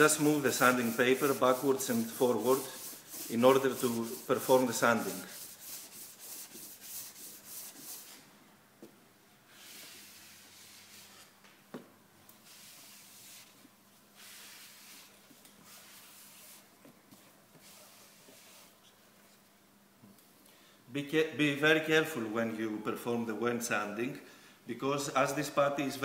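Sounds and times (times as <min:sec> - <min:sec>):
sandpaper rubbing back and forth: 0:00.0 - 0:08.2, 0:14.2 - 0:16.7.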